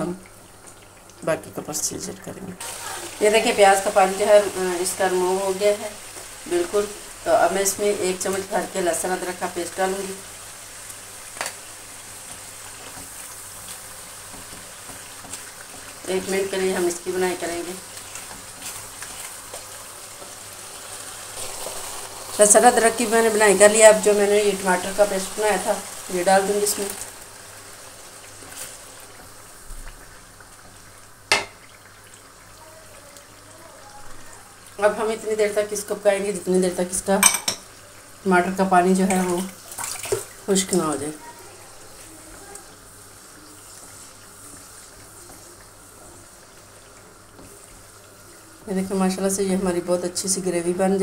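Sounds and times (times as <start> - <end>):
paste sizzling in oil: 2.6 - 51.0
wooden spatula stirring: 12.2 - 22.6, 24.3 - 30.9, 41.8 - 48.2.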